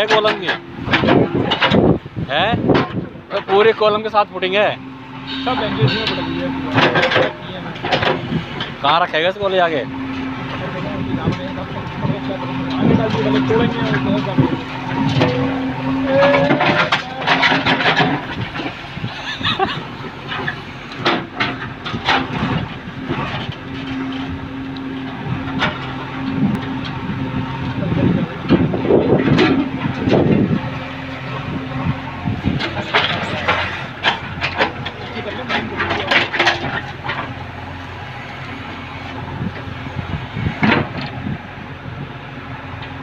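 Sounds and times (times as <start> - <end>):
excavator diesel engine running: 0.0 - 43.0
bucket knocks and clanks: 16.2 - 18.8.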